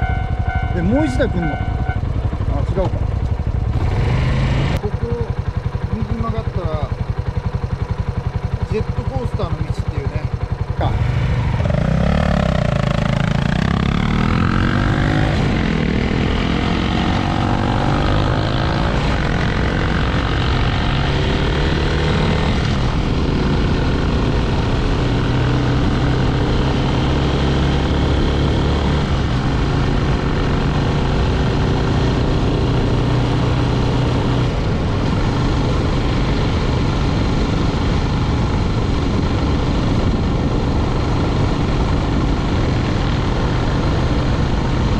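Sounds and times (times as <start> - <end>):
motorcycle engine accelerating: 0.0 - 44.9
wind noise on microphone: 32.2 - 44.9.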